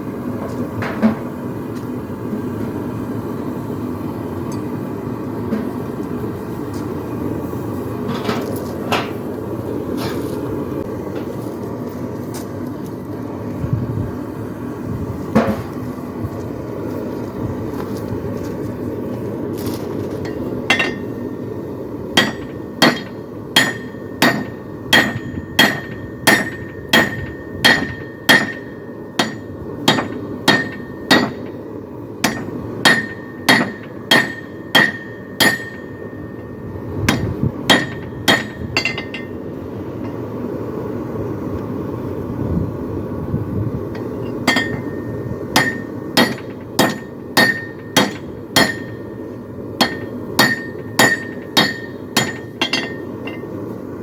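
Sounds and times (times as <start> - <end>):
hammer striking hot steel on anvil: 20.2 - 40.2, 43.9 - 53.7.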